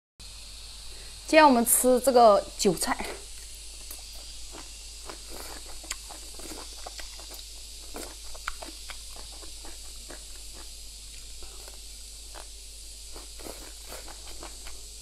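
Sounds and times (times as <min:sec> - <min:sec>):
person chewing crisp stalks: 0:03.4 - 0:15.0.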